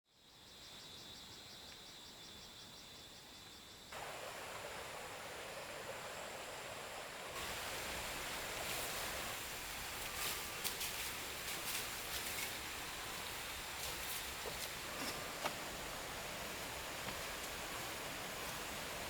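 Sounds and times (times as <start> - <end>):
insects chirping: 0.1 - 19.0
rain or running water hiss: 3.9 - 19.0.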